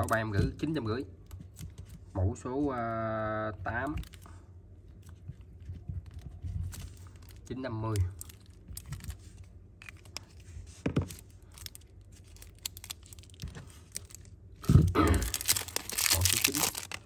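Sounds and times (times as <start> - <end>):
packaging crinkling: 5.8 - 17.0.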